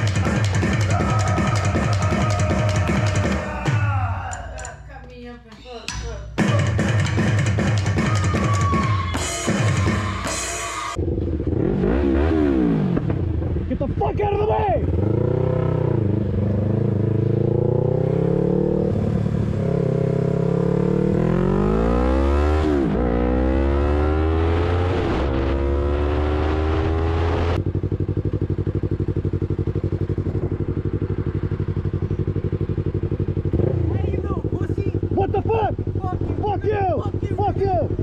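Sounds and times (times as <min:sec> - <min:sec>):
motorcycle engine revving: 0:10.9 - 0:38.0.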